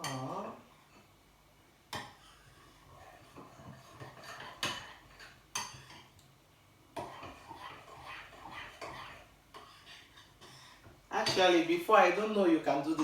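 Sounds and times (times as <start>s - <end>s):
cutlery scraping a dish: 1.9s - 6.2s, 7.0s - 11.5s.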